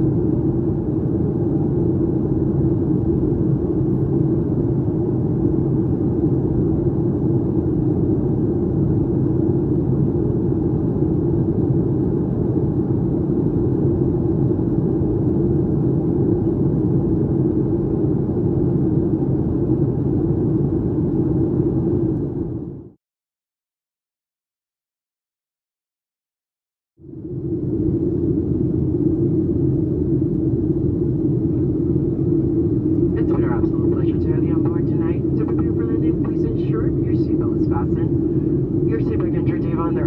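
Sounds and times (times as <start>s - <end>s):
low rumble of jet engines: 0.0s - 23.0s, 27.0s - 40.0s
air rushing over fuselage: 33.6s - 40.0s.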